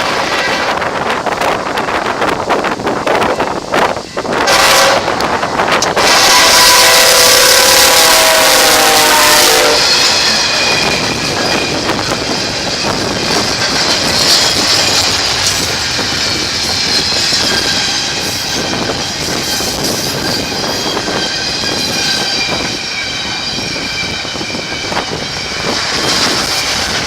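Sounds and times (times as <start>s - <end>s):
train horn blast: 0.0s - 0.9s, 4.3s - 10.7s
train wheels clicking over rail joints: 0.0s - 9.0s, 9.7s - 27.0s
wind buffeting microphone: 0.0s - 27.0s.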